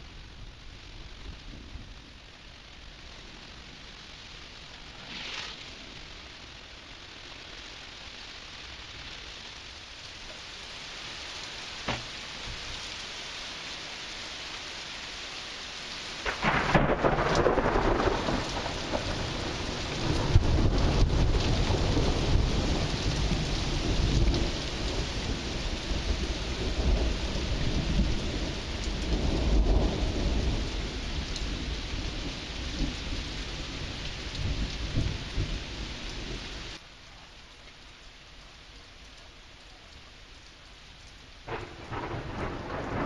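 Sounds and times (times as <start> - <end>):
steady rain: 0.0 - 43.0
rolling thunder: 16.2 - 36.0, 41.5 - 43.0.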